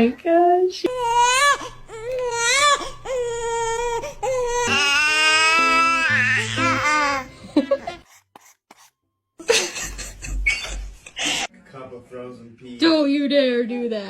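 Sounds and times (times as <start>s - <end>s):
baby crying: 0.9s - 8.0s.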